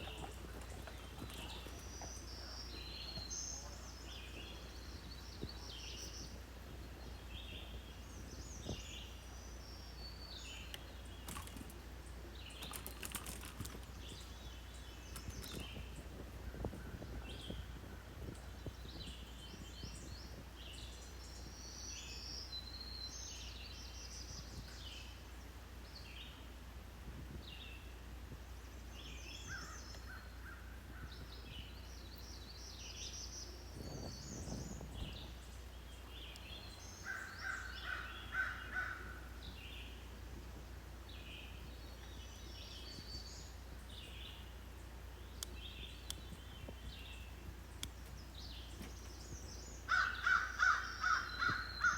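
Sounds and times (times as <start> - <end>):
songbirds chirping: 0.0 - 51.9.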